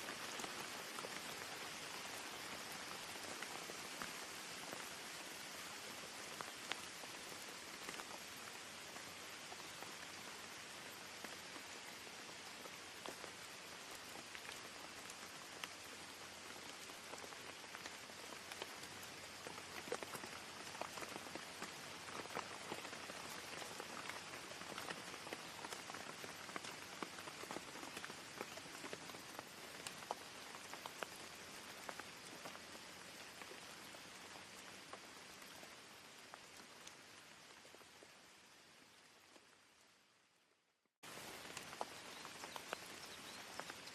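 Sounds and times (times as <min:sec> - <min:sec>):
rain falling: 0:00.0 - 0:43.9
raindrops pattering: 0:00.0 - 0:43.9.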